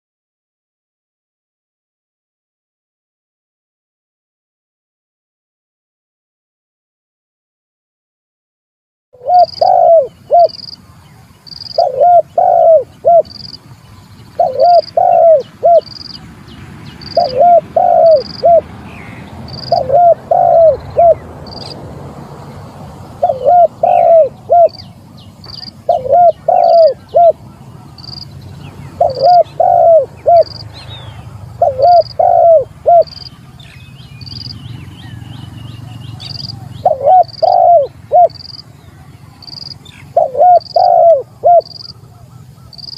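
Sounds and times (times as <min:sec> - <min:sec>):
dove cooing: 0:09.2 - 0:10.7, 0:11.6 - 0:13.6, 0:14.3 - 0:16.2, 0:17.0 - 0:18.7, 0:19.5 - 0:21.8, 0:23.2 - 0:28.2, 0:28.9 - 0:33.7, 0:35.8 - 0:38.6, 0:39.4 - 0:42.9.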